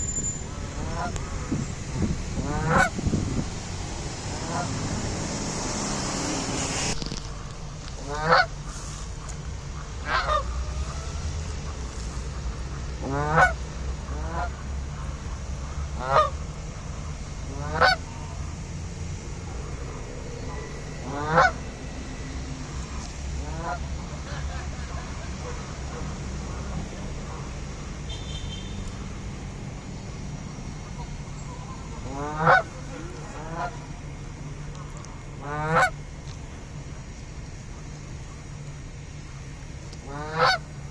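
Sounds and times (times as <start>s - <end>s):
low background rumble: 0.0s - 40.9s
geese honking: 0.5s - 6.0s, 7.8s - 18.6s, 19.4s - 40.8s
hiss: 8.6s - 9.4s.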